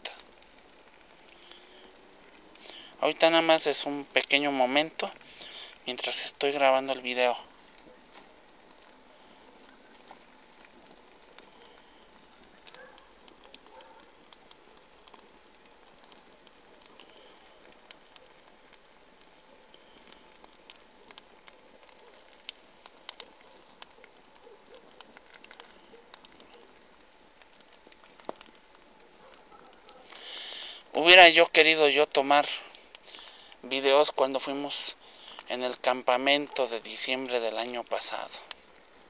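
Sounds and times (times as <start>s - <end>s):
bonfire crackling and popping: 0.0s - 39.0s.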